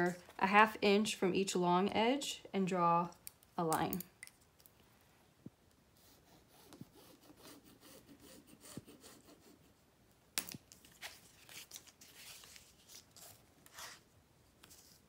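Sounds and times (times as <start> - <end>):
pen scratching on faux leather: 6.0 - 9.6
crinkling and rubbing of strip: 10.5 - 15.0.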